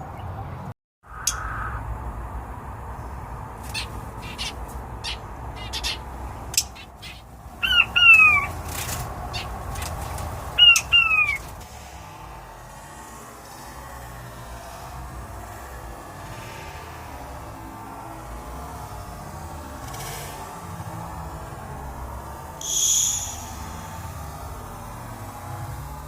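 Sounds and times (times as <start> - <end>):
bird squawking harshly: 3.6 - 6.0, 6.6 - 8.6, 10.6 - 11.5, 22.6 - 24.0.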